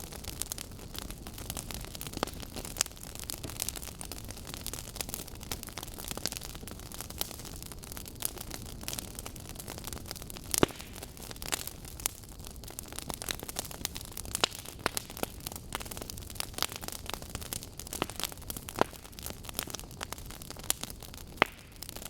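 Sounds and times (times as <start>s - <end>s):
logs crackling and popping: 0.0s - 22.0s.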